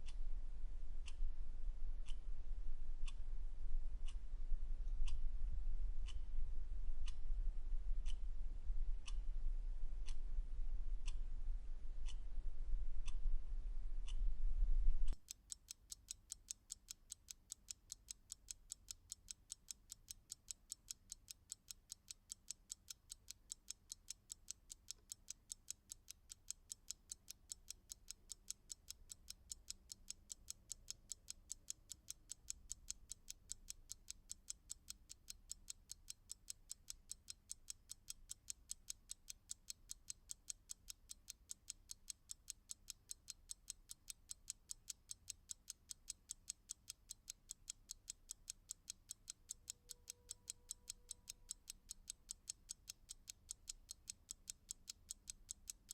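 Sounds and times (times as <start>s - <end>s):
clock ticking: 6.0s - 6.2s, 8.0s - 8.2s, 12.0s - 12.2s, 15.1s - 55.9s.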